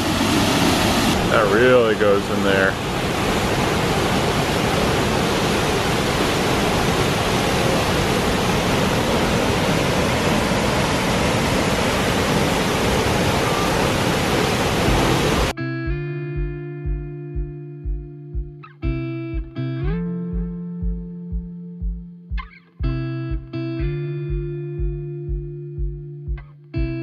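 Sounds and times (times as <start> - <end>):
waterfall rushing: 0.0 - 15.5
guitar music with beat: 14.8 - 27.0.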